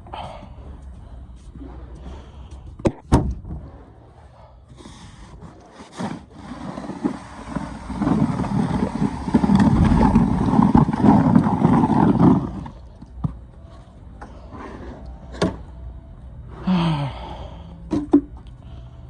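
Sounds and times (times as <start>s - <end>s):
snow shovel scraping pavement: 4.8s - 12.8s.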